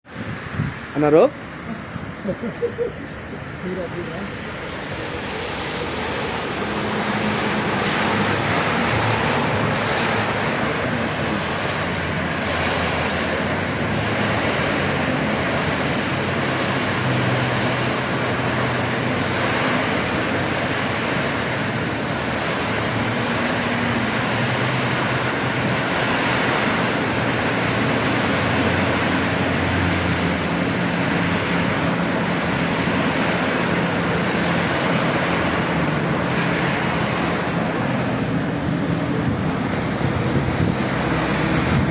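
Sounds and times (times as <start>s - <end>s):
heavy rain falling: 3.6s - 41.9s.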